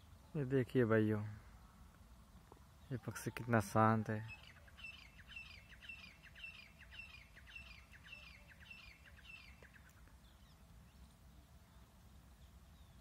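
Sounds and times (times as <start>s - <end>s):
faint high bird call: 2.8s - 10.6s.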